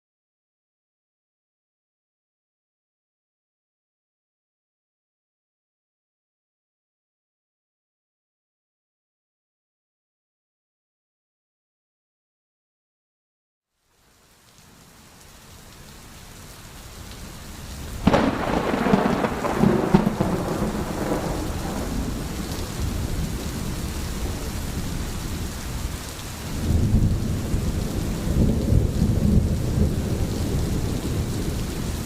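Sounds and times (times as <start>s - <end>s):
steady rain: 13.7s - 32.0s
thunderclap: 18.0s - 25.4s
rolling thunder: 18.0s - 25.9s, 26.5s - 32.0s.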